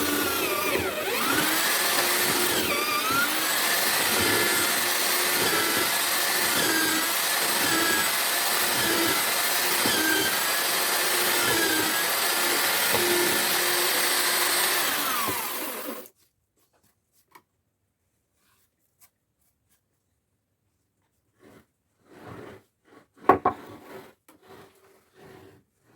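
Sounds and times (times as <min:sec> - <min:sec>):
mortising machine whining: 0:00.0 - 0:16.1.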